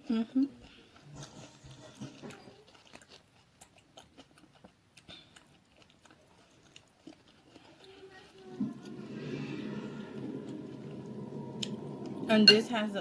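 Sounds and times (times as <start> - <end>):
close-up wet chewing: 0.4 - 8.6.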